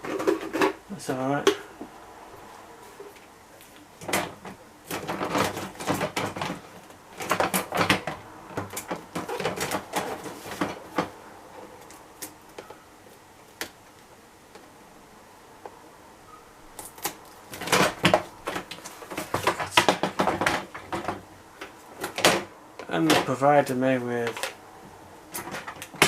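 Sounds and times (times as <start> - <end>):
plastic packaging rustling: 3.6 - 13.2, 16.8 - 24.6.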